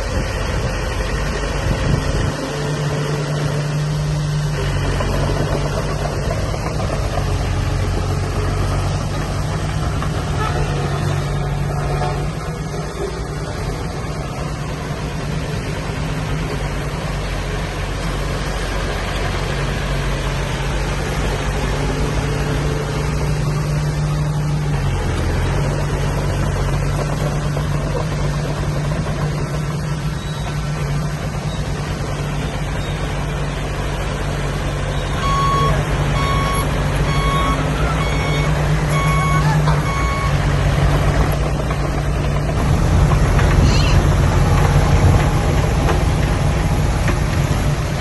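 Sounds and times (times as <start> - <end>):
diesel machinery engine running: 0.0 - 48.0
truck reversing alarm beeping: 34.8 - 41.4.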